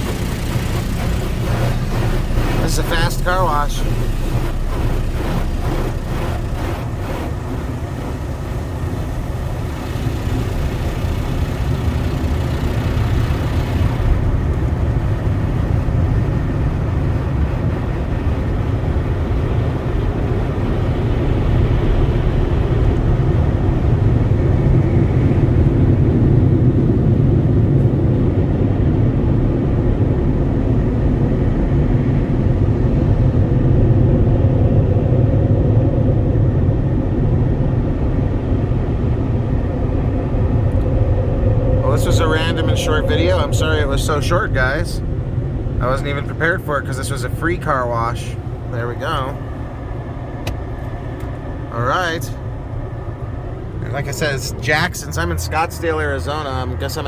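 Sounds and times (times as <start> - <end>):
car wash spray hissing: 0.0 - 14.3
low rumble: 0.0 - 57.0.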